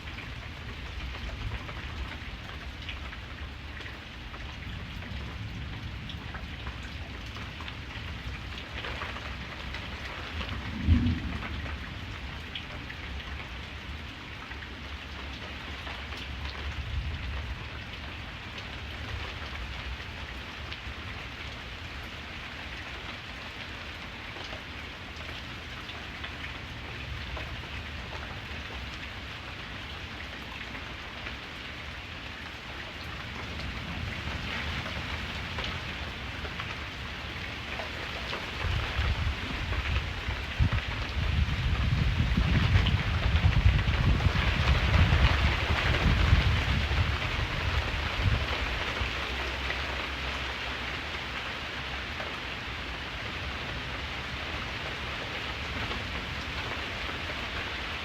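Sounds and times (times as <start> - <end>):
steady rain: 0.0 - 58.0
low thunder rumble: 10.2 - 12.4, 38.5 - 49.6
thunder clap: 10.6 - 11.8.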